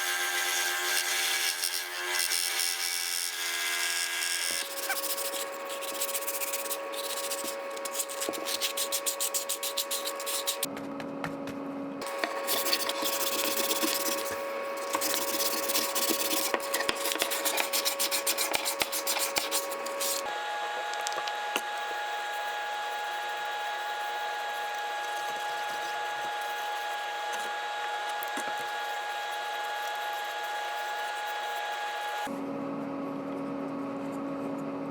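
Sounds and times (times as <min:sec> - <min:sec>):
small power tool motor: 0:00.0 - 0:10.7, 0:12.0 - 0:32.3
abrasive rasping on wood: 0:04.6 - 0:10.7, 0:12.0 - 0:20.3, 0:21.0 - 0:32.3.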